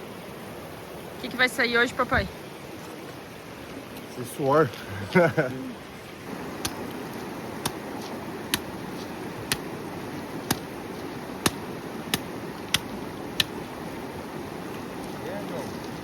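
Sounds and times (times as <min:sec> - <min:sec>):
axe chopping firewood: 0:06.6 - 0:06.9, 0:07.6 - 0:09.8, 0:10.4 - 0:10.8, 0:11.4 - 0:13.6.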